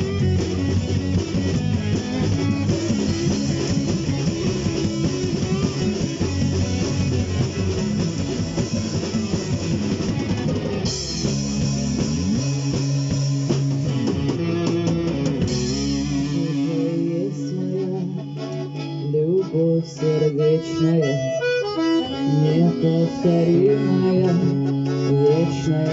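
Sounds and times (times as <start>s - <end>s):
instrumental rock music: 0.0s - 25.9s.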